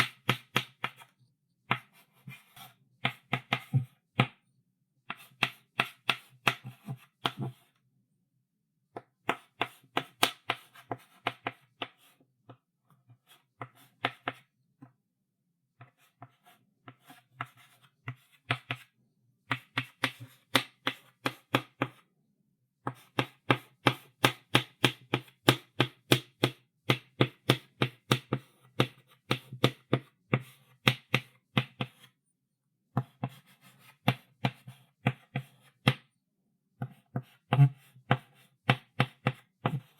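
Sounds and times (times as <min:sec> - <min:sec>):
chalk writing on blackboard: 0:36.8 - 0:39.9.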